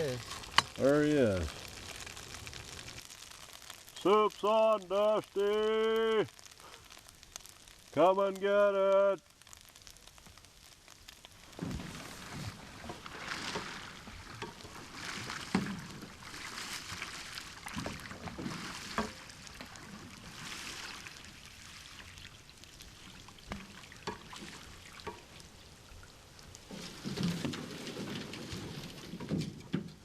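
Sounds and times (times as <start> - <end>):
canoe paddle splashing in water: 11.5 - 30.0.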